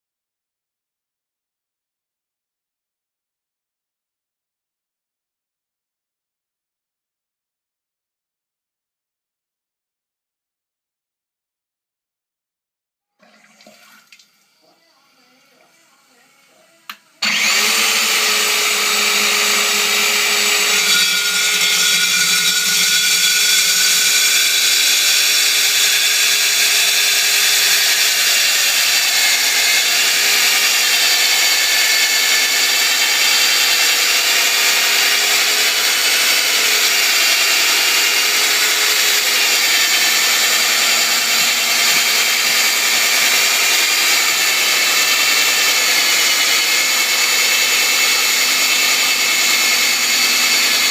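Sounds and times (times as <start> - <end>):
electric drill whining: 14.3 - 50.9.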